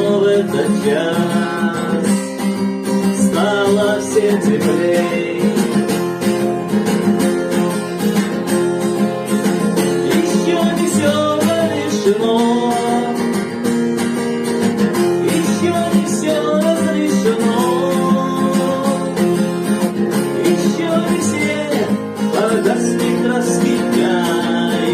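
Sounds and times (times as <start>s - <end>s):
person singing: 0.0s - 2.4s, 3.0s - 5.8s, 9.8s - 13.4s, 15.1s - 19.5s, 20.3s - 24.9s
acoustic guitar strumming: 0.0s - 24.9s.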